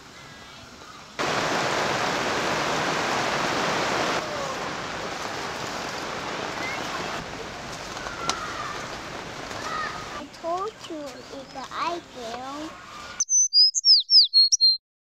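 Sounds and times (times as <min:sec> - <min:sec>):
heavy rain pouring: 0:01.2 - 0:10.3
faint chirps: 0:12.8 - 0:14.8.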